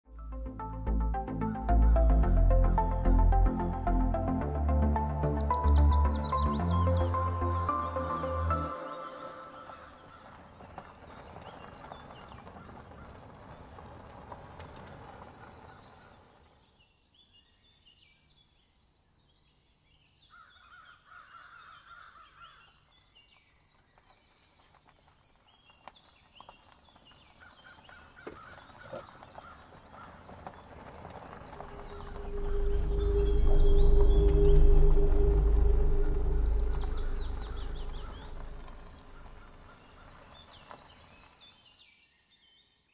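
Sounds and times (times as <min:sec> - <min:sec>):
birds chirping: 0:00.2 - 0:13.9, 0:25.1 - 0:41.9
longer lower bird call: 0:05.0 - 0:10.9, 0:31.4 - 0:40.9.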